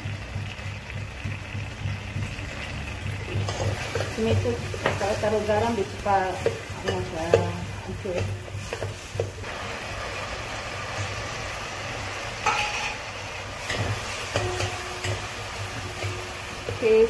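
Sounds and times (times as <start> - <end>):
food sizzling in oil: 0.0 - 17.0
metal spoon scraping pot: 12.4 - 13.0.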